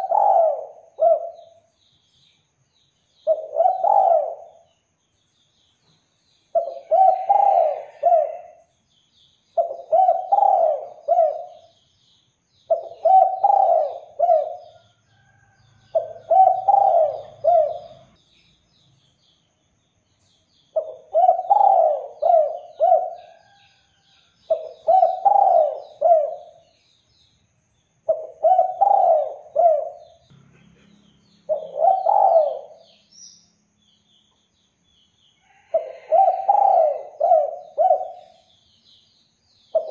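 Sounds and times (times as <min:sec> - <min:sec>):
dove cooing: 0:00.0 - 0:01.7, 0:03.2 - 0:04.7, 0:06.5 - 0:08.6, 0:09.6 - 0:11.7, 0:12.7 - 0:14.8, 0:15.9 - 0:18.2, 0:20.8 - 0:23.6, 0:24.5 - 0:26.6, 0:28.1 - 0:30.2, 0:31.5 - 0:32.9, 0:35.6 - 0:38.4
faint small birds twittering: 0:00.0 - 0:39.9.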